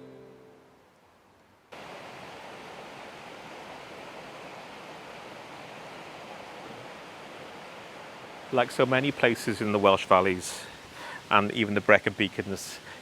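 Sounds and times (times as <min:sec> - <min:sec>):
river water rushing: 0:00.9 - 0:13.0.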